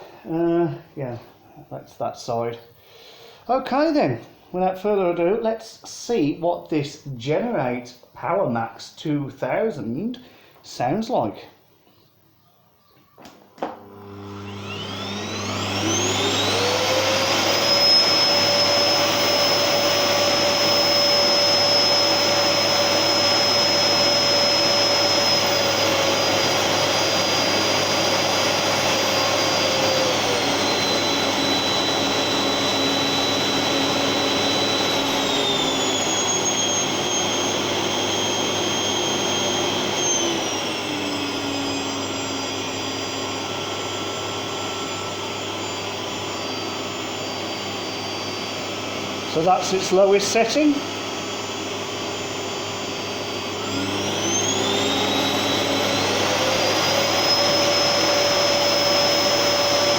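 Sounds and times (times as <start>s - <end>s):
vacuum cleaner motor whine: 13.2s - 59.9s.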